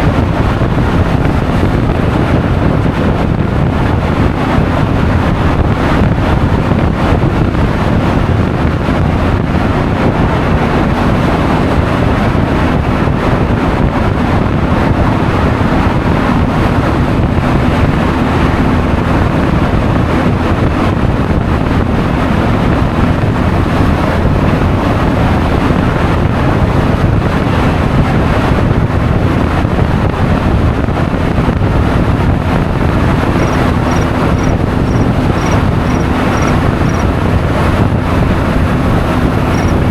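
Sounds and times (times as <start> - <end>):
road noise: 0.0 - 39.9
wind buffeting microphone: 0.0 - 39.9
scooter engine: 16.4 - 26.7, 32.4 - 39.9
small high ticks: 33.3 - 37.2, 39.5 - 39.8.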